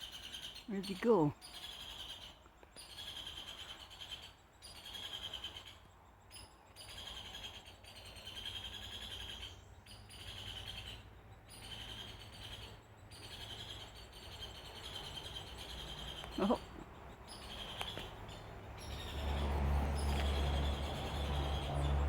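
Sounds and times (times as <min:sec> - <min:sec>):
bird trilling call: 0:11.6 - 0:22.0.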